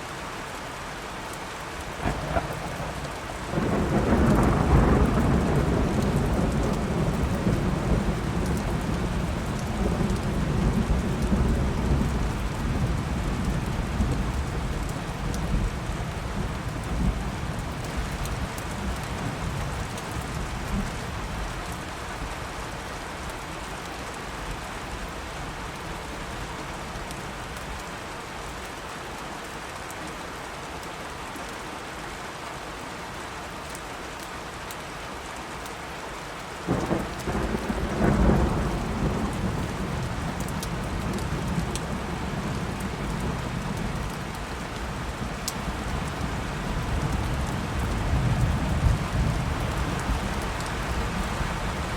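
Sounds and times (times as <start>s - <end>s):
heavy rain: 0.0s - 51.9s
loud thunderclap: 2.0s - 9.1s, 36.7s - 42.0s
rolling thunder: 2.0s - 15.7s, 36.7s - 44.3s.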